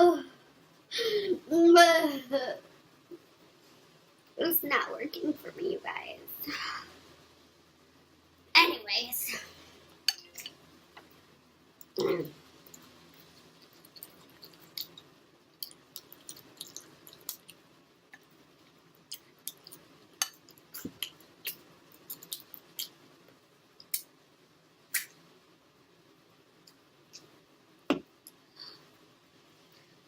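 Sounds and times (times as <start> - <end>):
chewing: 11.8 - 23.0.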